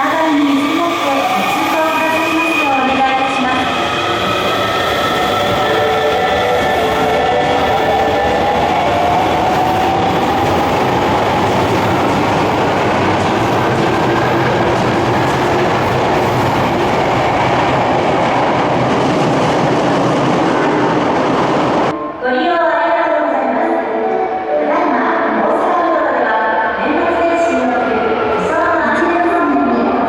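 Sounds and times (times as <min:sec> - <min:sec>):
subway train motor whine: 0:00.0 - 0:22.2
train cars rumbling and clattering: 0:02.7 - 0:22.0.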